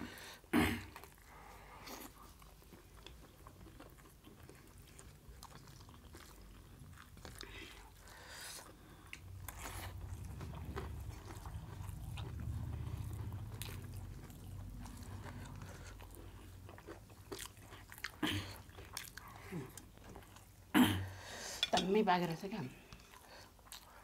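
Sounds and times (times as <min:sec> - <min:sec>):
chewing and biting food: 0:00.9 - 0:20.7, 0:22.8 - 0:24.0
fingers mixing food on steel plates: 0:21.4 - 0:22.6.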